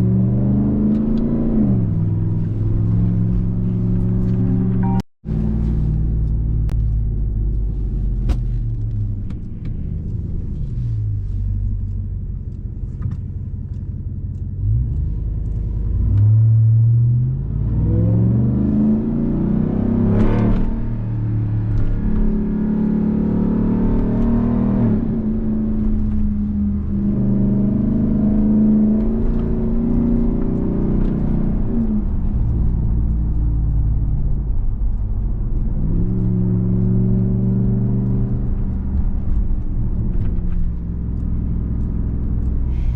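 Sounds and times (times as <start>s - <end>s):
truck engine accelerating: 0.0s - 9.2s, 9.9s - 42.9s.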